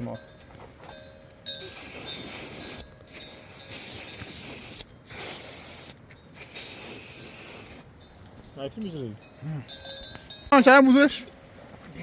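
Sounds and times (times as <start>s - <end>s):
loud steady hissing: 1.6s - 7.9s.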